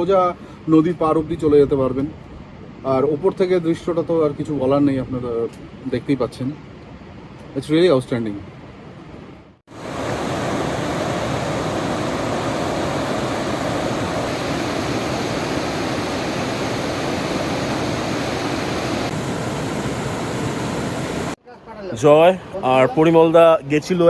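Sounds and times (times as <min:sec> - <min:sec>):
fast-flowing water rushing: 0:09.7 - 0:21.4.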